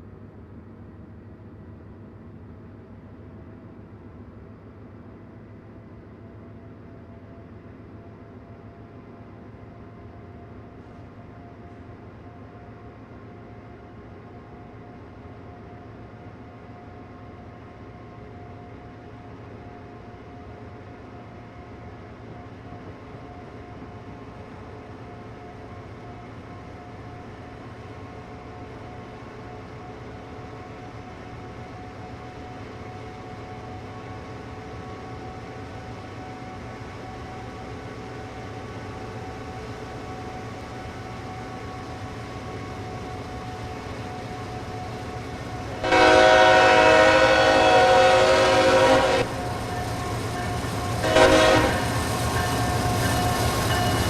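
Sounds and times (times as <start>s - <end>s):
train rumble: 0.0s - 54.0s
locomotive air horn blast: 45.7s - 49.5s, 51.0s - 52.0s.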